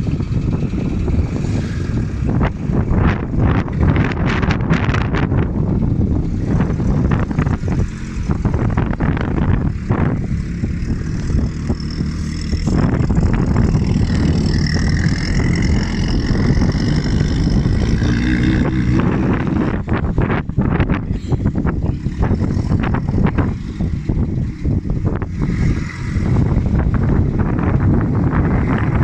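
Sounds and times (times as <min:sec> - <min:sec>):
engine running hard under load: 0:00.0 - 0:29.0.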